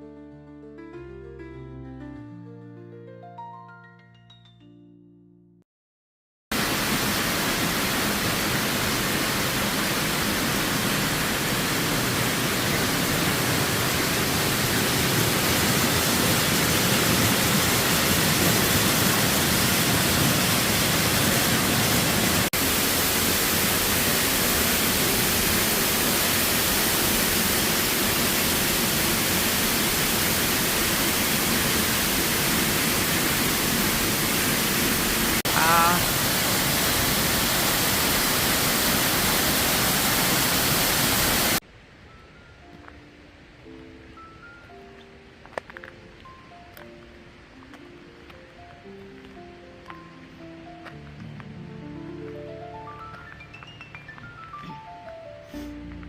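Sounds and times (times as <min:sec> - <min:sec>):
waterfall rushing: 0:06.6 - 0:41.6.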